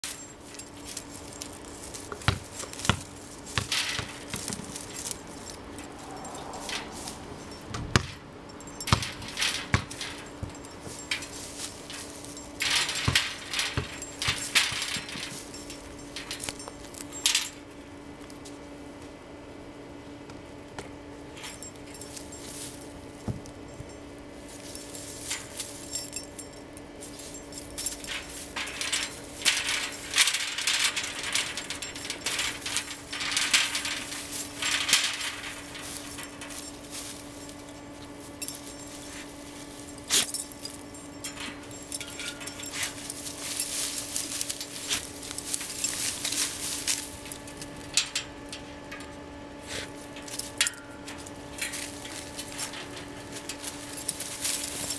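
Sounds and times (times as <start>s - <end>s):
metallic clinks: 0.0s - 17.8s, 21.3s - 54.9s
rustling scuffles: 9.0s - 17.0s, 27.0s - 40.8s, 41.7s - 47.9s, 51.6s - 54.9s.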